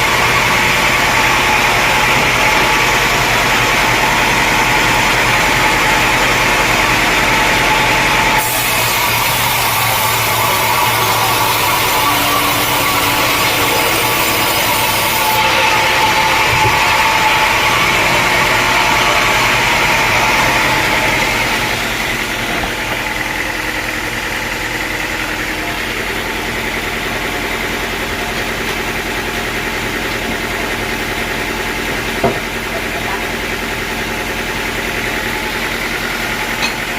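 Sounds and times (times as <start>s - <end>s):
saw cutting through wood: 0.0s - 36.9s
sawmill engine running: 0.0s - 36.9s.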